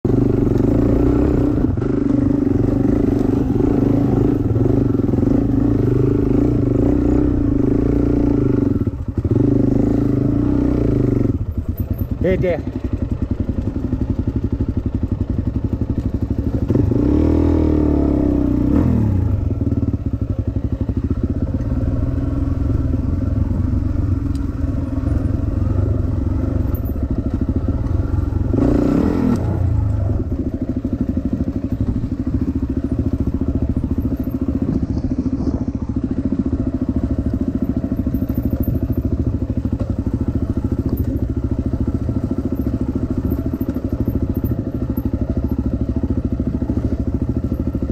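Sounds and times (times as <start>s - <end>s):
dirt bike engine revving: 0.1s - 11.5s, 16.2s - 44.9s.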